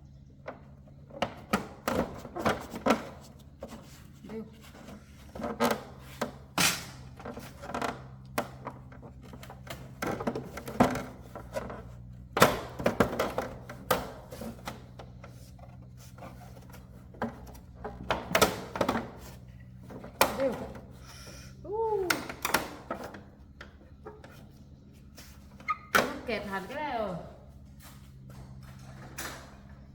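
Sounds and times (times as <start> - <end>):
hand tools and metal parts clattering: 0.2 - 29.9.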